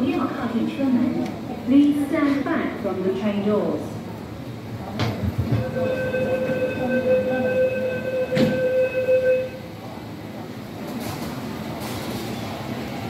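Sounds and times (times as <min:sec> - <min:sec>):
train rumble: 0:00.0 - 0:13.0
train doors knocking shut: 0:05.0 - 0:06.7, 0:08.1 - 0:08.9
door warning buzzer: 0:05.6 - 0:09.6.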